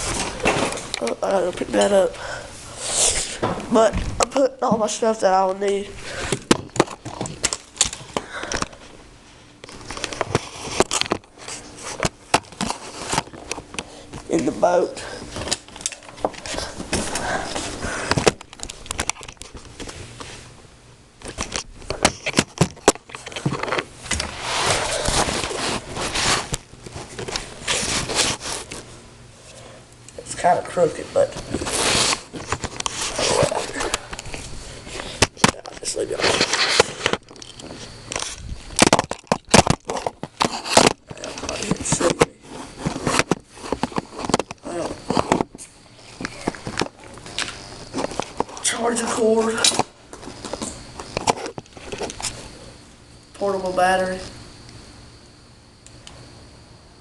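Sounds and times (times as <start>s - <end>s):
fishing gear rustling: 31.2s - 48.7s.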